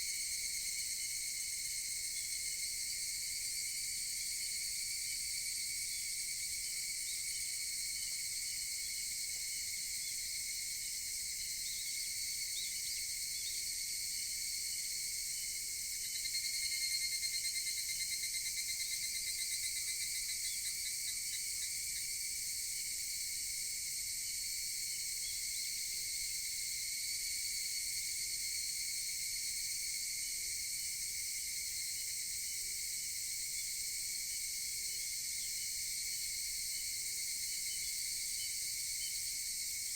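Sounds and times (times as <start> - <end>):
cicadas chorus: 0.0 - 39.9
cicada rapid pulsing call: 3.8 - 22.2, 31.7 - 39.9.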